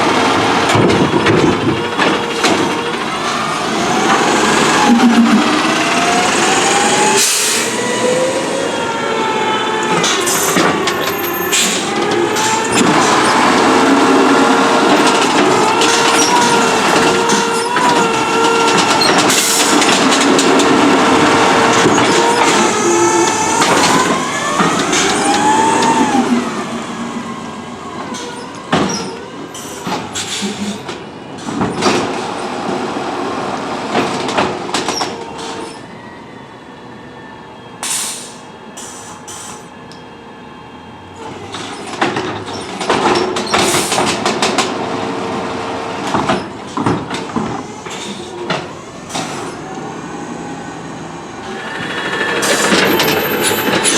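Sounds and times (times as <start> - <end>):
garbage truck engine and hydraulics: 0.0 - 53.9
knocks and clunks: 0.4 - 3.4.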